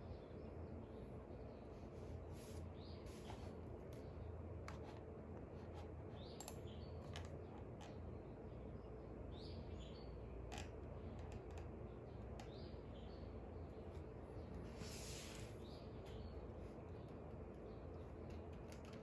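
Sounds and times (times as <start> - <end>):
steady low hum: 0.0 - 19.0
songbirds chirping: 11.7 - 18.6.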